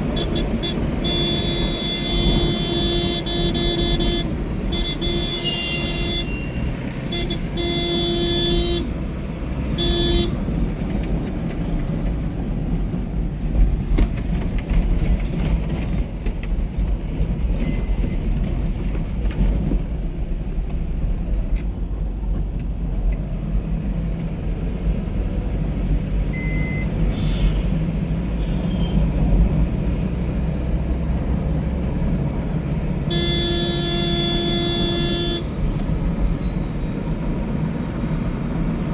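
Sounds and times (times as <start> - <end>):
vehicle horn blasts: 0.0 - 9.0, 9.7 - 10.4, 26.4 - 27.8, 28.4 - 29.1, 33.1 - 35.7
road traffic rumble: 0.0 - 38.9.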